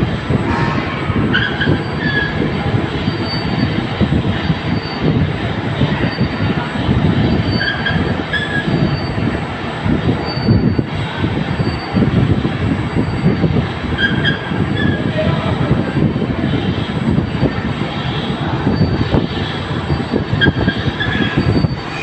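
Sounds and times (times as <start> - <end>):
metal on metal squeals: 0.5 - 3.7, 20.4 - 22.0.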